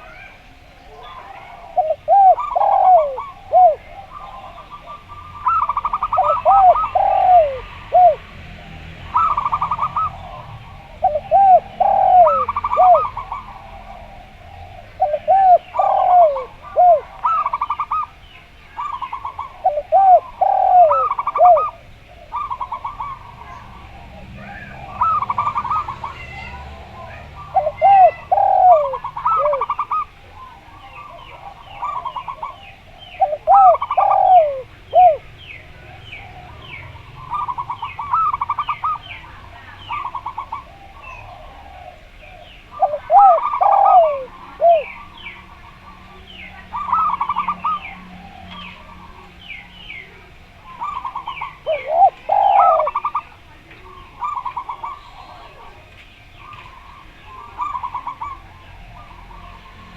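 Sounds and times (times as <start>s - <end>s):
small birds twittering: 0.0s - 59.9s
dove staccato coos: 1.1s - 18.2s, 18.8s - 59.9s
deep swooping dove coos: 1.2s - 8.2s, 9.1s - 18.0s, 19.1s - 39.0s, 40.0s - 49.2s, 50.7s - 53.3s.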